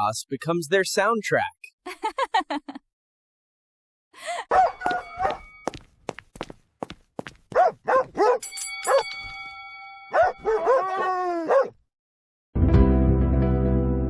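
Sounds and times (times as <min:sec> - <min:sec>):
dog barking: 0:04.5 - 0:05.5, 0:07.5 - 0:09.1, 0:10.1 - 0:11.8
steady ringing tone: 0:08.4 - 0:10.6.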